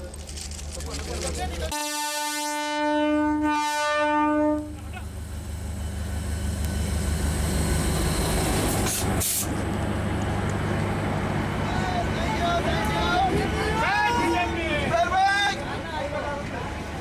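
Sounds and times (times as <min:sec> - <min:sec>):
train engine rumbling: 0:00.0 - 0:17.0
train horn blast: 0:01.7 - 0:04.8.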